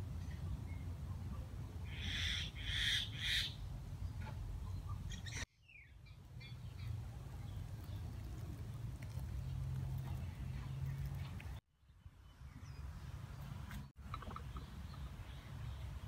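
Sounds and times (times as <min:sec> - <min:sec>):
bird calling: 0:01.9 - 0:03.6.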